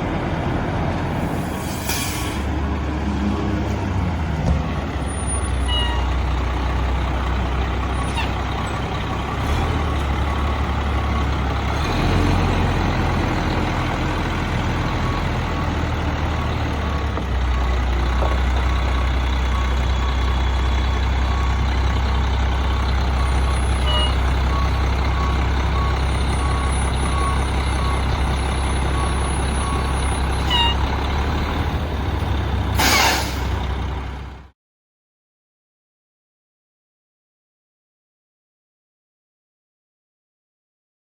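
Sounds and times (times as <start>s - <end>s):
garbage truck diesel engine: 0.0s - 34.6s
air brakes hissing: 1.2s - 2.6s, 32.7s - 33.6s
backup alarm beeping: 23.2s - 30.9s.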